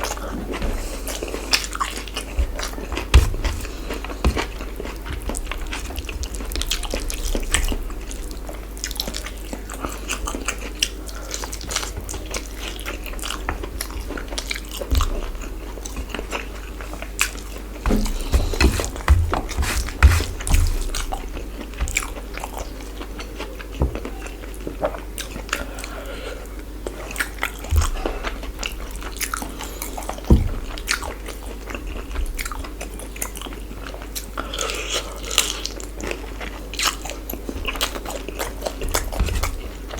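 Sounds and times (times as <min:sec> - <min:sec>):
chewing and crunching food: 0:00.0 - 0:39.9
steady low hum: 0:00.1 - 0:11.4, 0:12.3 - 0:24.9.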